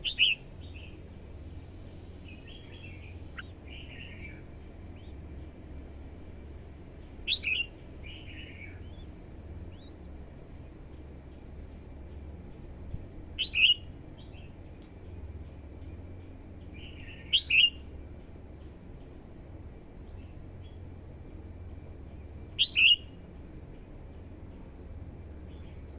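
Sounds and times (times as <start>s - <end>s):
bird singing sharp phrases: 0.0s - 1.0s, 2.0s - 5.5s, 7.2s - 10.2s, 13.4s - 15.2s, 16.6s - 17.8s, 22.6s - 23.1s
steady low hum: 0.0s - 25.9s.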